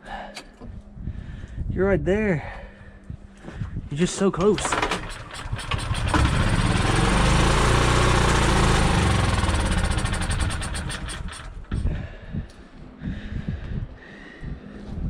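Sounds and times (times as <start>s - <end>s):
small engine running unevenly: 4.5s - 11.9s.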